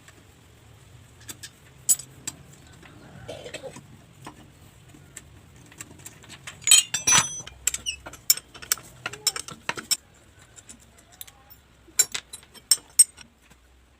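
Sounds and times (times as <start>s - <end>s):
small metal parts clinking: 1.2s - 2.4s, 6.0s - 13.3s.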